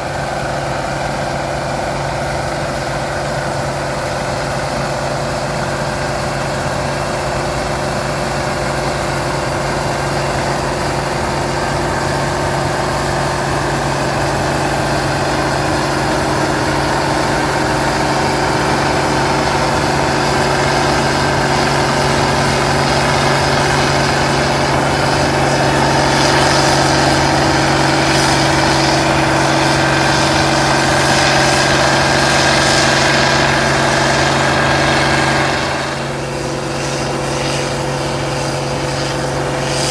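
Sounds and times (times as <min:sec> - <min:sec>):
combine engine hum: 0:00.0 - 0:39.9
threshing machinery rattle and hiss: 0:08.8 - 0:39.9.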